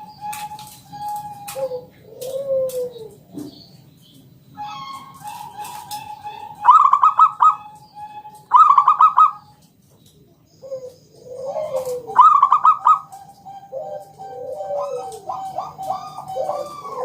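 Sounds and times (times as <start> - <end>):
dove cooing stuttering notes: 4.6 - 9.5, 11.2 - 17.0.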